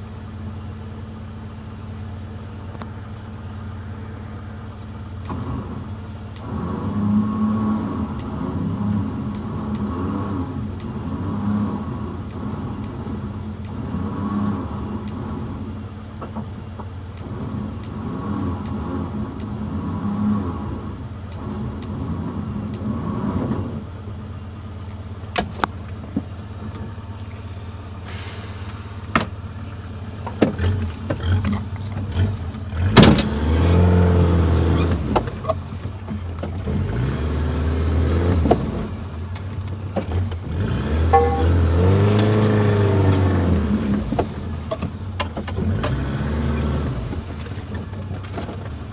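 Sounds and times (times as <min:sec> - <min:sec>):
car engine revving: 0:02.2 - 0:26.0, 0:26.6 - 0:48.9.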